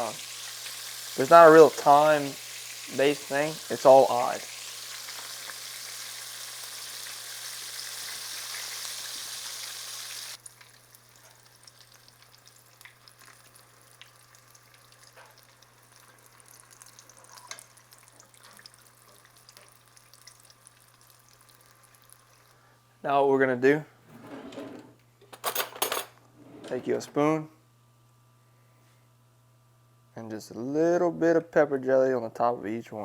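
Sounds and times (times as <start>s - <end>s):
food sizzling in hot oil: 0.0s - 22.6s
faint crackles and ticks: 10.4s - 22.6s.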